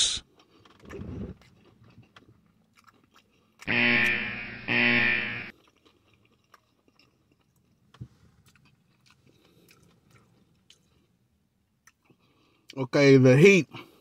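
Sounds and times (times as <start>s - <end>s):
chewing fried chicken sandwich: 0.2s - 3.7s, 5.5s - 12.8s.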